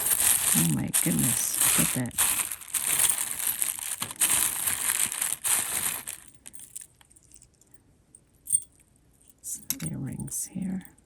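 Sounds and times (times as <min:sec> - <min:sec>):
packaging crinkling: 0:00.0 - 0:07.0.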